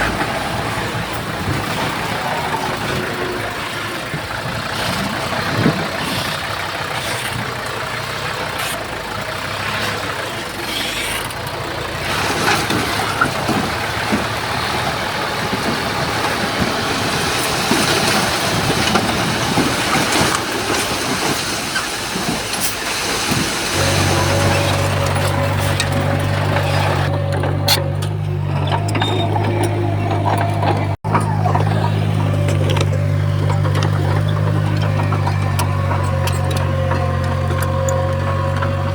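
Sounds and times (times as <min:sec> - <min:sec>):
heavy diesel machinery running: 0:00.0 - 0:38.9
knocks and clanks: 0:10.7 - 0:38.9.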